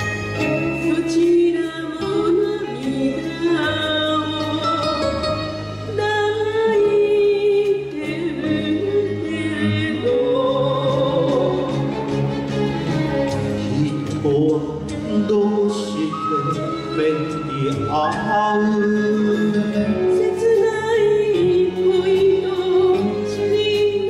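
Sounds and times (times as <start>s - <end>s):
instrumental accompaniment: 0.0s - 24.0s
person singing: 13.4s - 24.0s.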